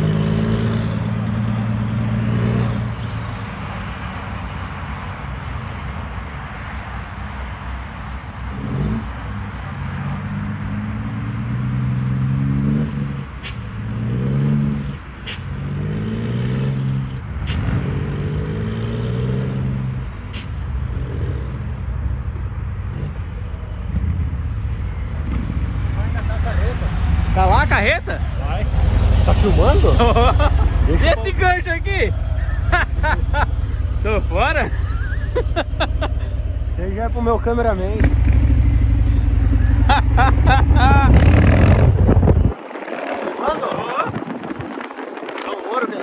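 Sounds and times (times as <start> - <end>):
road noise: 0.0 - 46.0
truck engine accelerating: 22.9 - 46.0.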